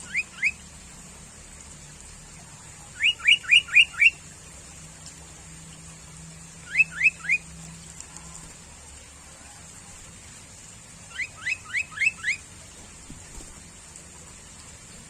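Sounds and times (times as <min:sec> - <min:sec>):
bird calling rising notes: 0:00.0 - 0:00.6, 0:03.0 - 0:04.2, 0:06.6 - 0:07.5, 0:11.1 - 0:12.4.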